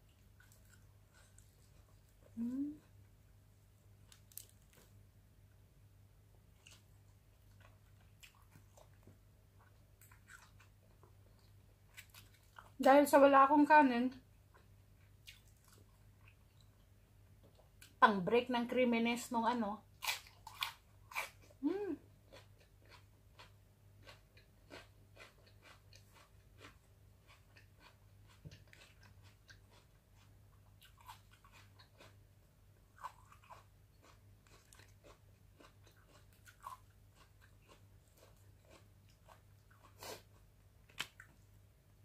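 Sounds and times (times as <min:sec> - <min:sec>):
faint low hum: 0:00.0 - 0:42.0
person chewing and lip-smacking: 0:06.6 - 0:12.8, 0:14.5 - 0:16.7, 0:20.0 - 0:32.2, 0:32.9 - 0:41.4.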